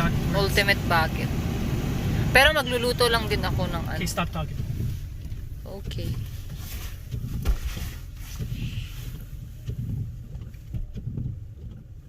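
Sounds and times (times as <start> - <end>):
car idling from inside cabin: 0.0 - 12.0
thump: 7.2 - 8.6.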